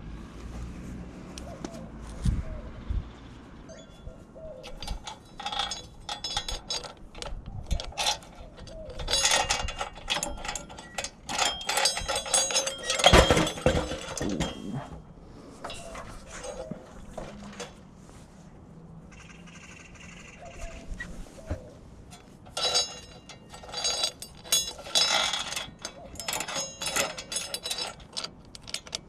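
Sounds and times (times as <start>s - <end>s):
metal tools clinking and clattering: 3.7s - 17.8s, 21.4s - 29.0s.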